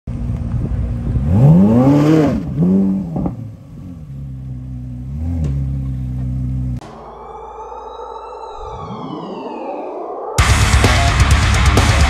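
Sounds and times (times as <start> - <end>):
sports car engine idling and revving: 0.1 - 6.8.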